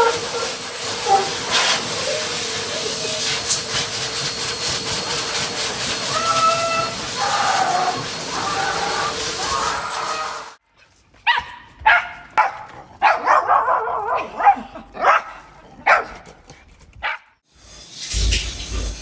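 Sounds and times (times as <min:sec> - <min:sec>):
dog barking and yelping: 0:00.0 - 0:01.4, 0:11.3 - 0:16.1
steady hiss: 0:17.5 - 0:19.0.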